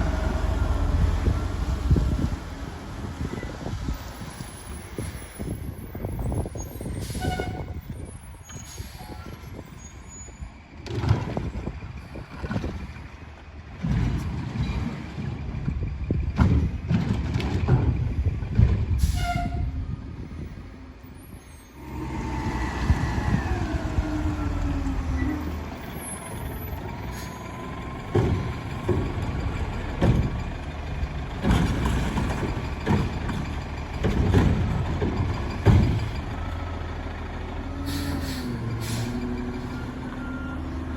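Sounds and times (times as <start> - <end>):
garbage truck diesel engine: 0.0 - 40.9
knocks and clanks: 10.8 - 13.0, 13.7 - 19.0, 27.8 - 36.4.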